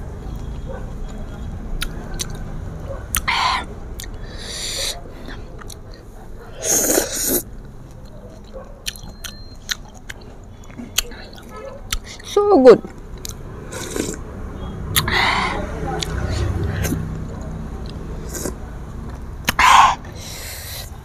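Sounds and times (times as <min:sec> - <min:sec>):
chewing mango: 0:00.2 - 0:14.2, 0:14.8 - 0:21.0
wet mouth clicks: 0:03.1 - 0:06.0, 0:08.9 - 0:12.3, 0:14.9 - 0:17.0, 0:17.8 - 0:20.9.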